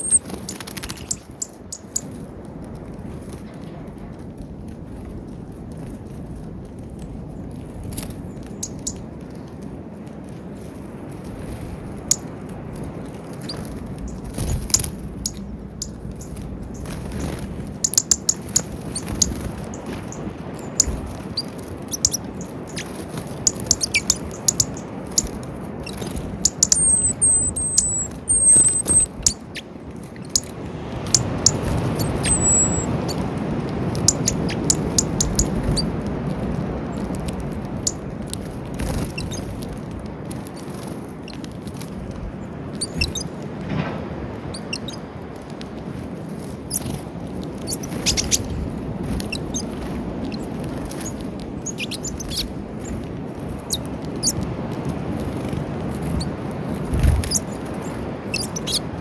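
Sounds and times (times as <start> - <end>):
high thin bird chirps: 0.0 - 2.1, 13.4 - 30.5, 31.1 - 33.2, 42.8 - 43.3, 47.7 - 48.5, 50.3 - 52.5, 56.9 - 58.9
birds pecking at feeder: 0.0 - 43.7, 44.4 - 59.0
low rumble: 12.5 - 17.8.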